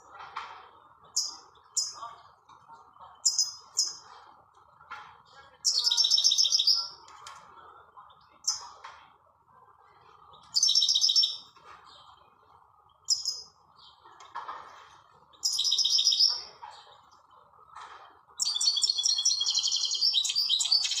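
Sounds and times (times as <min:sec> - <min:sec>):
bird twittering song: 0:01.0 - 0:02.0, 0:03.2 - 0:04.1, 0:05.6 - 0:07.0, 0:10.3 - 0:12.2, 0:12.9 - 0:14.1, 0:15.3 - 0:16.9, 0:18.4 - 0:21.0.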